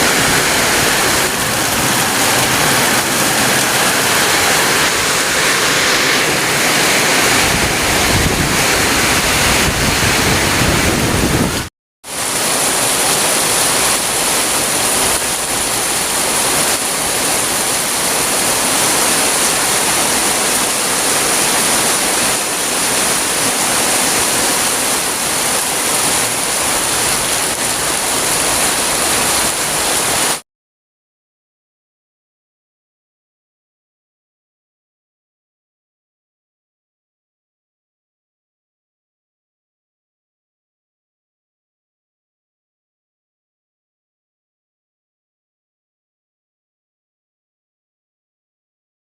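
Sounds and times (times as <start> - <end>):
heavy rain hissing: 0.0 - 30.4.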